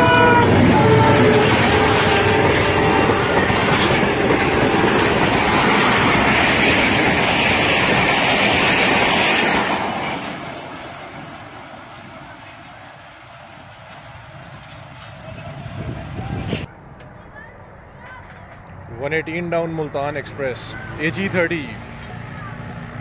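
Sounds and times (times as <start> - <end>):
locomotive horn: 0.0 - 5.2
train wheels rushing on rails: 0.0 - 16.7.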